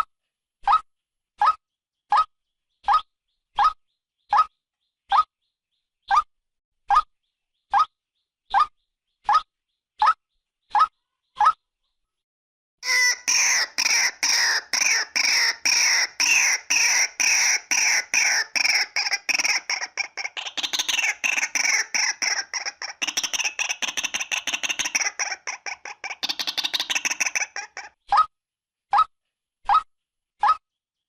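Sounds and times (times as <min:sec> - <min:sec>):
waterhen harsh calls: 0:12.8 - 0:28.0.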